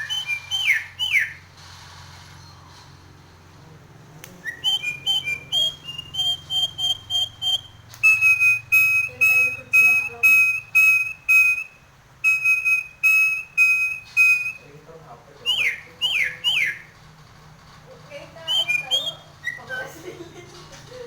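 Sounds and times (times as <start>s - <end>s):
myna whistling: 0.0s - 1.5s, 4.3s - 14.8s, 15.4s - 17.0s, 18.1s - 20.1s.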